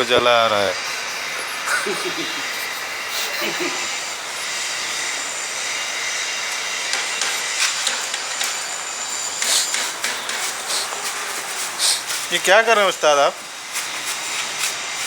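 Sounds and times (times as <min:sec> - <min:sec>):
hissing rush of flame: 0:00.0 - 0:15.0
flame crackles: 0:03.6 - 0:15.0.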